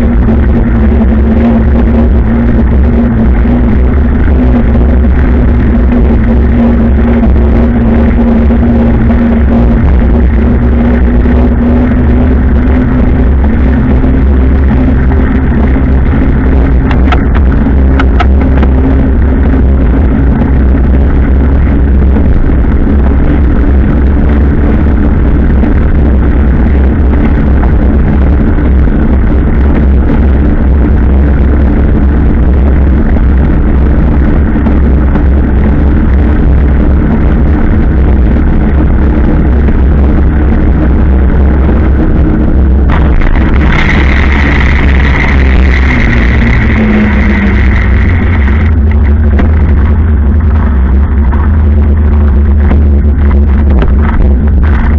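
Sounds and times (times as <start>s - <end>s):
motorcycle engine droning: 0.0s - 54.9s
wind rumble on microphone: 0.0s - 54.9s.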